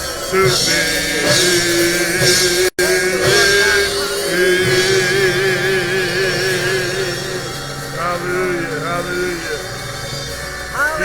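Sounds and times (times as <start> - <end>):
church band playing: 0.0 - 11.0.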